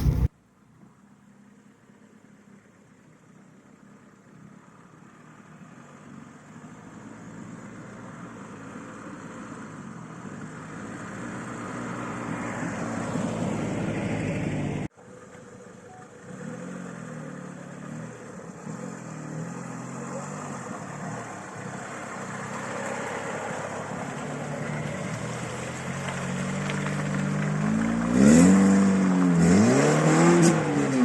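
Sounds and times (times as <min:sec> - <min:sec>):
car engine running: 0:00.0 - 0:00.3.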